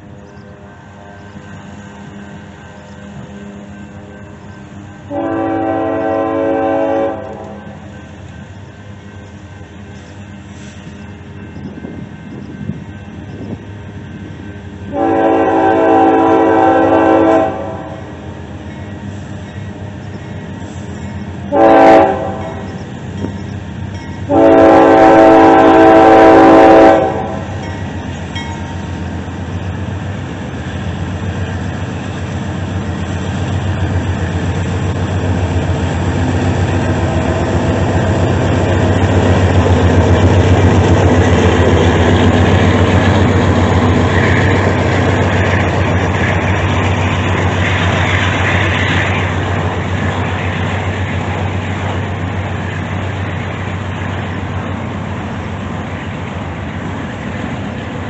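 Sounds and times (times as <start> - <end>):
locomotive engine passing: 0.0 - 58.0
locomotive horn blasts: 5.1 - 7.9, 14.8 - 18.1, 21.5 - 22.8, 24.3 - 27.6.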